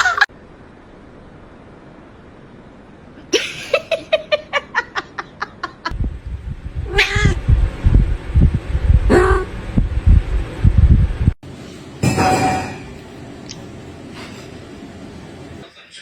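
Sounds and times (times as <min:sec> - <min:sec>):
low rumbling noise: 0:00.3 - 0:12.2.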